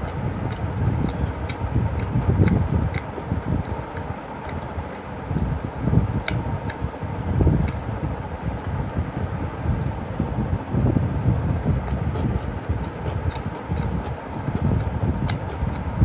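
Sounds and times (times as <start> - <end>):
wet mouth clicks: 0.0 - 5.5, 6.2 - 6.9, 7.6 - 7.9, 11.2 - 15.9
chewing food: 0.0 - 5.6, 6.2 - 7.9, 11.1 - 16.0.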